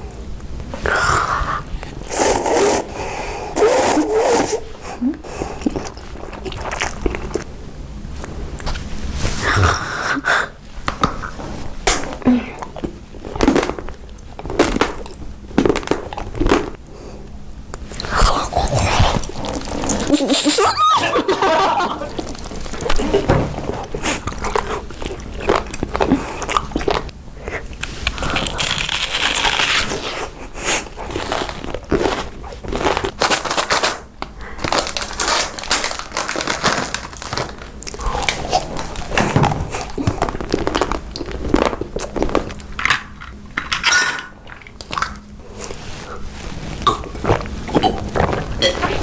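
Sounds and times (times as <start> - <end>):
crunching and chewing snacks: 5.2 - 7.6, 11.9 - 16.8, 17.8 - 49.0.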